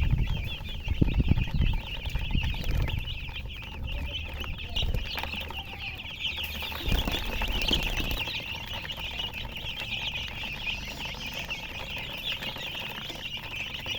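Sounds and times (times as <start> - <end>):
baby chicks peeping: 0.0 - 13.9
low bumps: 0.0 - 13.9.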